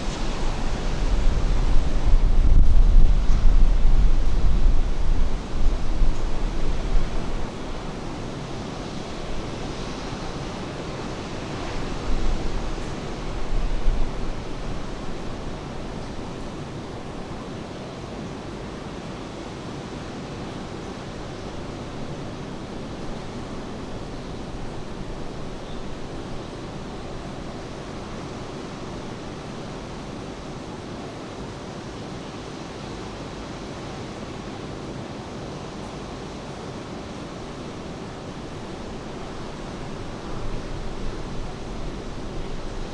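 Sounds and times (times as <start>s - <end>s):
wind buffeting microphone: 0.0s - 17.0s, 38.4s - 42.9s
sea surf: 0.0s - 17.4s
rain: 0.0s - 42.9s.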